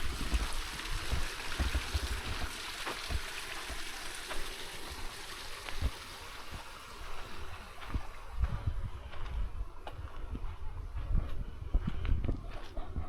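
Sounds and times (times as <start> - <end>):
outdoor hiss: 0.0 - 9.9
wind buffeting microphone: 7.8 - 13.0.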